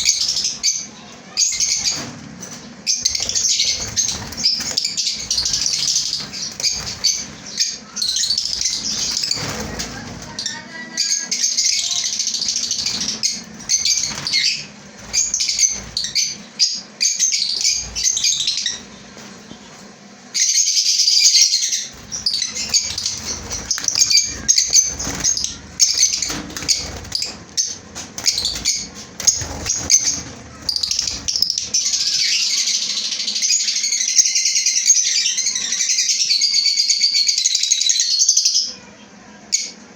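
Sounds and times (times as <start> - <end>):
lovebirds chirping shrilly: 0.0 - 38.8.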